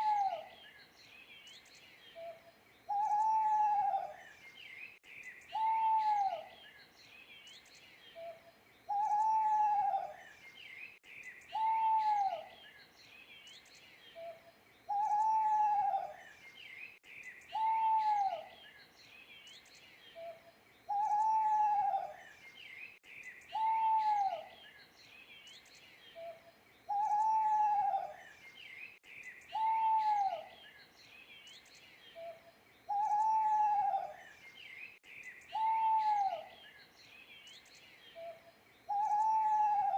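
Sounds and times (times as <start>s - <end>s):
owl hooting: 0.0s - 0.5s, 2.2s - 4.2s, 5.5s - 6.5s, 8.2s - 10.2s, 11.5s - 12.5s, 14.2s - 16.2s, 17.5s - 18.5s, 20.2s - 22.2s, 23.5s - 24.5s, 26.2s - 28.2s, 29.5s - 30.6s, 32.2s - 34.2s, 35.5s - 36.6s, 38.2s - 39.9s
small birds chirping: 0.0s - 39.9s.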